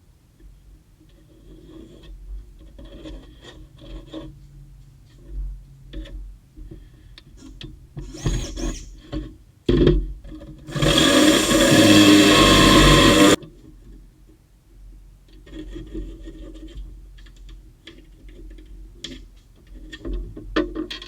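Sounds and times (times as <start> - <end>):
tools scraping and rubbing: 7.4 - 9.1.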